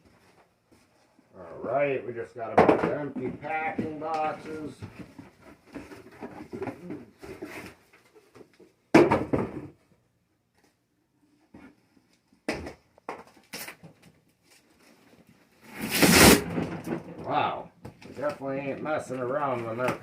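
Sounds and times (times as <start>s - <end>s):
cardboard boxes scraping and rustling: 4.5s - 7.9s, 15.6s - 17.0s.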